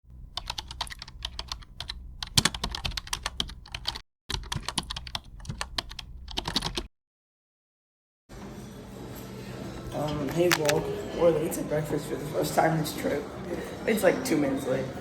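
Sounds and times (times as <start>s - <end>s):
rapid keyboard typing: 0.3s - 6.9s, 10.4s - 10.8s.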